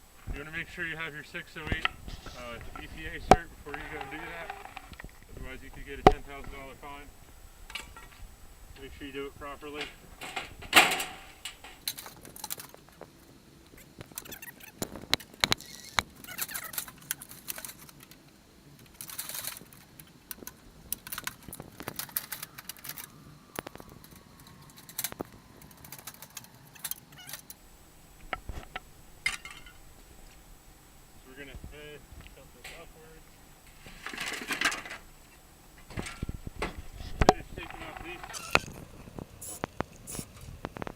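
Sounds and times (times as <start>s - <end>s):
hand tools clinking on metal: 0.2s - 7.1s, 8.8s - 12.7s, 32.5s - 33.2s
loud metal clank: 9.8s - 11.8s.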